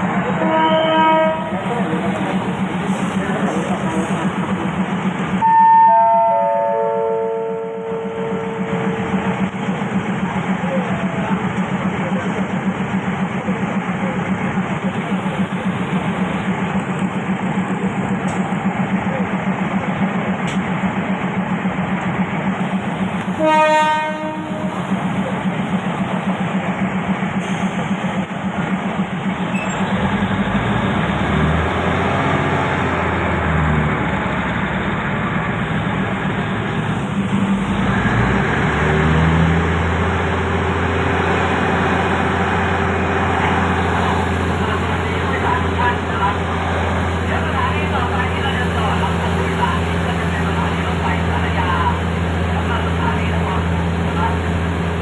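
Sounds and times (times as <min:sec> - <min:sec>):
train rumbling: 0:00.0 - 0:55.0
train horn blast: 0:00.4 - 0:01.6, 0:05.4 - 0:09.2, 0:23.3 - 0:24.8.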